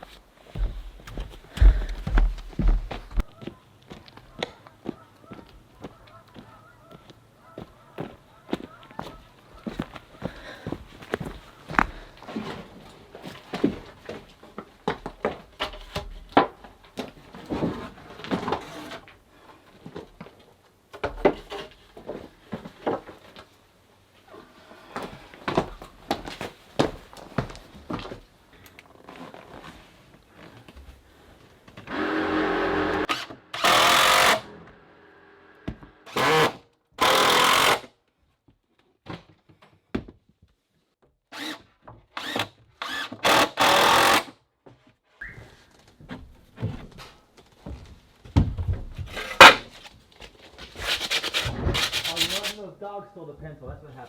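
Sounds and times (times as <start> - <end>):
power drill running in bursts: 31.9 - 34.6, 35.3 - 37.9, 41.3 - 41.6, 42.2 - 44.3.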